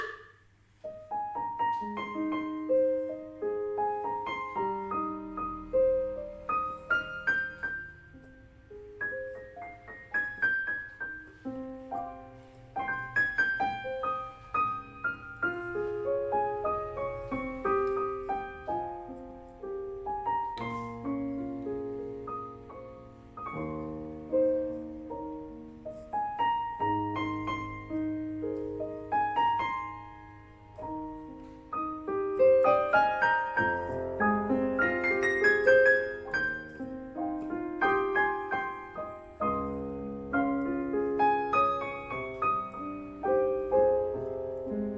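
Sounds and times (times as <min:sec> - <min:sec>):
keyboard playing piano melody: 0:00.0 - 0:44.9.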